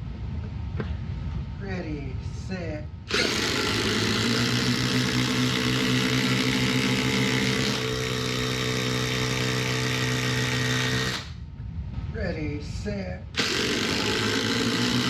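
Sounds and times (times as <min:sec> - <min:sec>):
impact drivers hammering: 0:03.1 - 0:11.3, 0:13.4 - 0:15.0.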